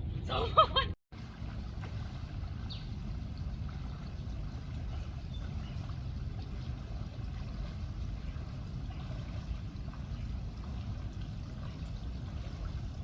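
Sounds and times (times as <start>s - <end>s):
water running: 1.2s - 13.0s.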